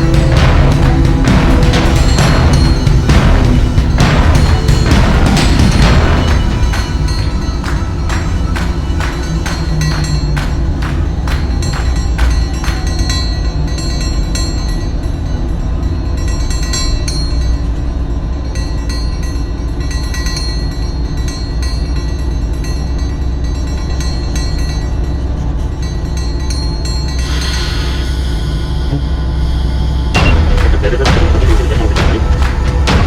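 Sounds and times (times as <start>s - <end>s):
steady tones: 0.0s - 14.6s, 28.4s - 33.0s
freight train rumbling: 0.0s - 16.4s, 28.1s - 33.0s.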